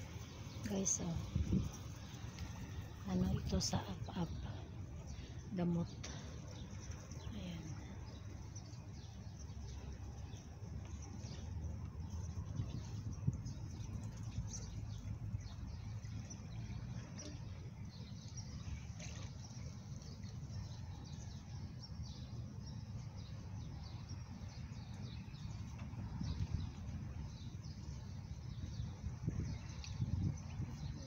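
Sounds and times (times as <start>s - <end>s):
steady low rumble: 0.0s - 16.6s.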